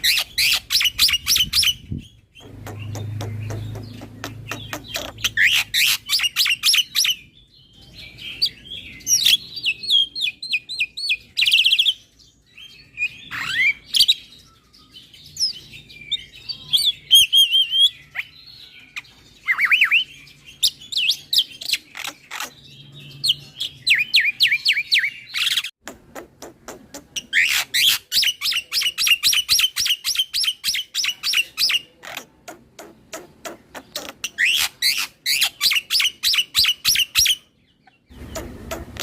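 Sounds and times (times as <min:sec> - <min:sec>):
bird singing whistles and chirps: 0:00.0 - 0:25.7.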